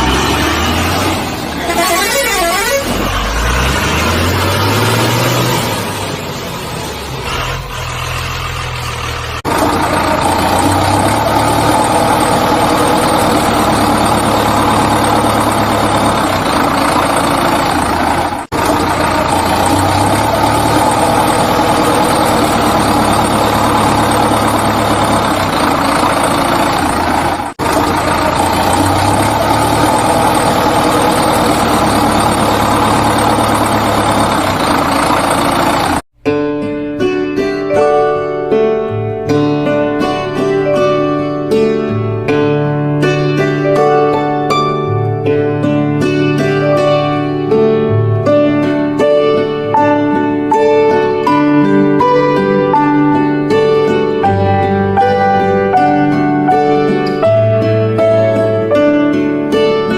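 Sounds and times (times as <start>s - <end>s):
engine running: 0.0s - 36.1s.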